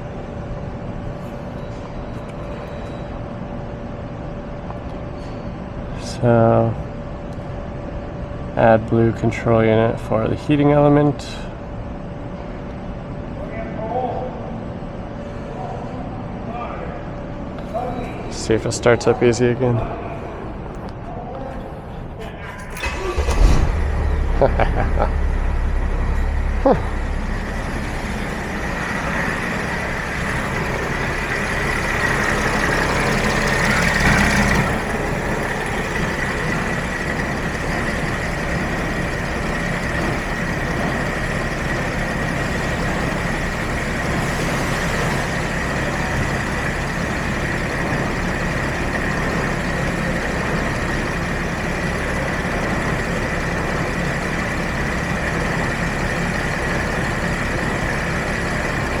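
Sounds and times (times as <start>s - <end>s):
diesel engine idling: 0.0s - 21.2s, 21.8s - 59.0s
high whine: 22.7s - 59.0s.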